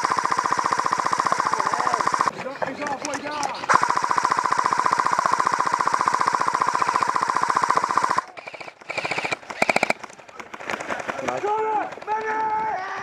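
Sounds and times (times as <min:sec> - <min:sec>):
airsoft gun firing full-auto: 0:00.0 - 0:02.3, 0:03.6 - 0:11.2.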